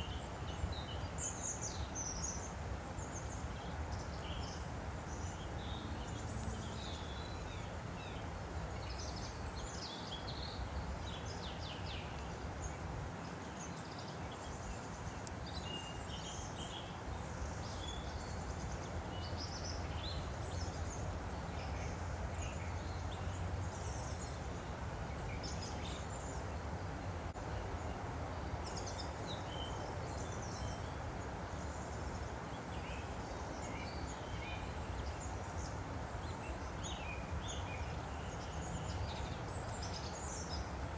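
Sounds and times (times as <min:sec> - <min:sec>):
small birds chirping: 0:00.0 - 0:40.9
stream flowing: 0:00.0 - 0:40.9.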